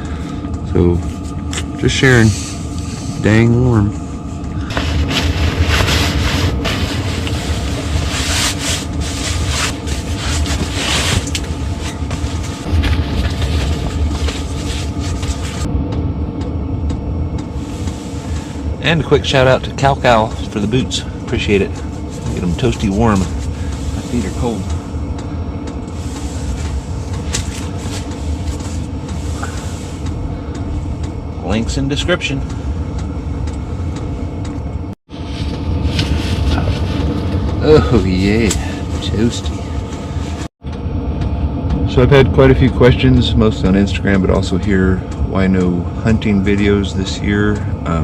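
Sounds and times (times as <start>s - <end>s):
diesel heater droning: 0.0s - 48.0s
rustling handling noise: 4.2s - 15.7s, 20.0s - 25.2s, 25.8s - 30.2s.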